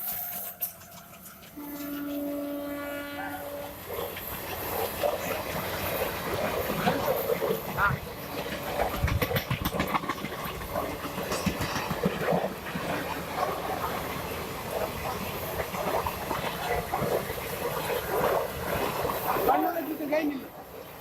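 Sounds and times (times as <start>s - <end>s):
train rumbling on rails: 0.0s - 21.0s
wheel clicks over rail joints: 6.6s - 13.1s.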